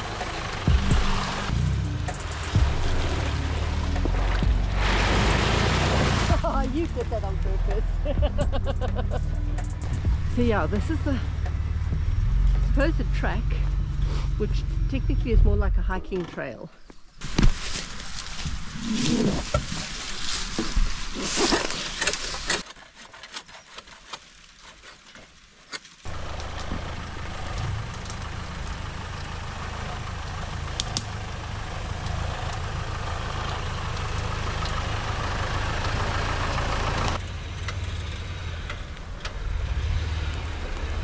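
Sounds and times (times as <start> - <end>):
vehicle engine running slowly: 0.0 - 15.7, 26.1 - 41.0
branches rustling and cracking: 16.8 - 36.0.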